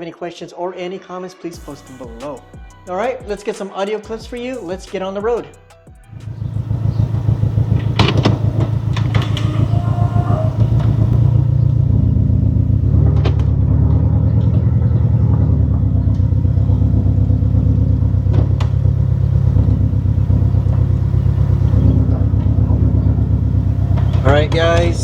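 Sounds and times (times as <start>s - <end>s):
car engine running at low revs: 5.9s - 25.0s.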